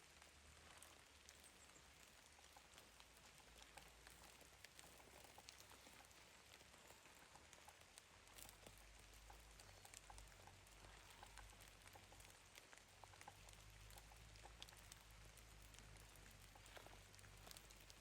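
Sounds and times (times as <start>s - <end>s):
small scattered ticks: 0.0s - 18.0s.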